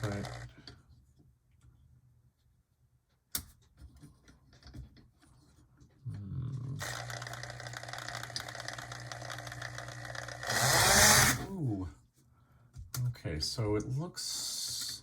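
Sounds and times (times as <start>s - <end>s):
model locomotive motor buzzing whine: 0.0s - 0.5s, 6.8s - 11.4s.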